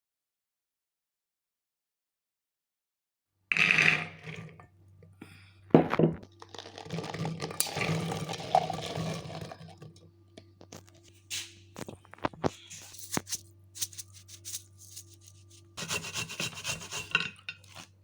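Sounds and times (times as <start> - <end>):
water pouring and splashing: 6.4 - 10.0.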